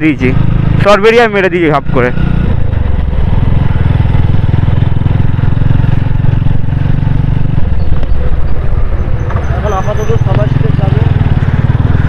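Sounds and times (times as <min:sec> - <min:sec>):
motorcycle engine low rumble: 0:00.0 - 0:12.0.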